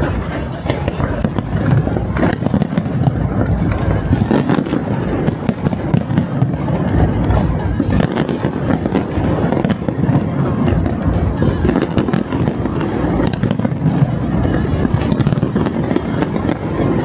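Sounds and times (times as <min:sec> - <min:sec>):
fireworks booming: 0:00.0 - 0:17.0
fireworks crackling: 0:00.0 - 0:17.0
music playing: 0:00.0 - 0:17.0.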